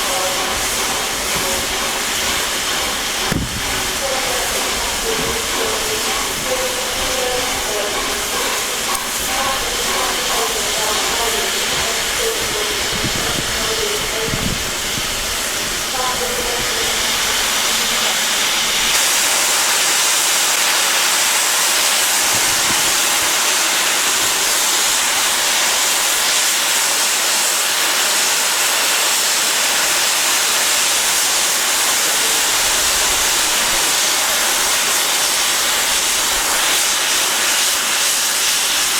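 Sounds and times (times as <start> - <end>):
steam locomotive hissing: 0.0 - 38.9.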